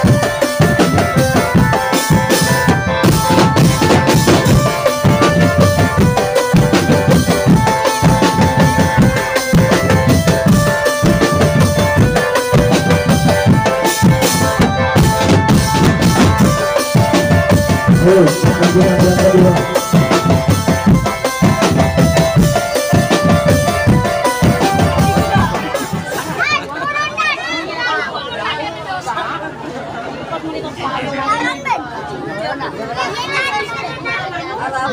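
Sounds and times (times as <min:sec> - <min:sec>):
held melody line: 0:00.0 - 0:26.6
drum band playing: 0:00.0 - 0:27.9.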